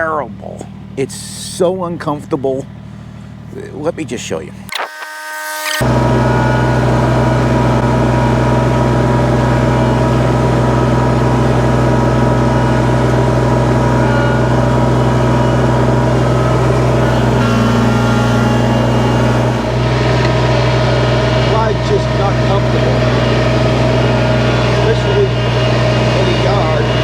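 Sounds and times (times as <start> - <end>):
tractor diesel engine running: 5.8 - 27.0.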